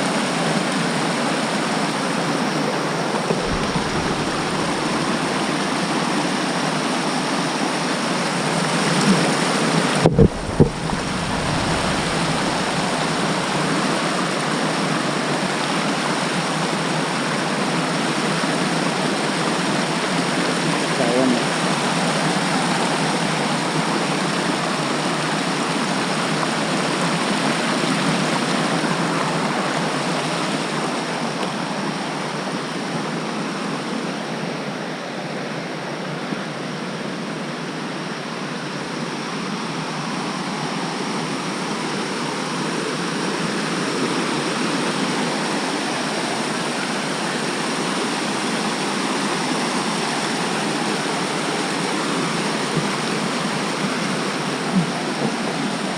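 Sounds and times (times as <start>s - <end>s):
rushing water: 0.0s - 55.9s.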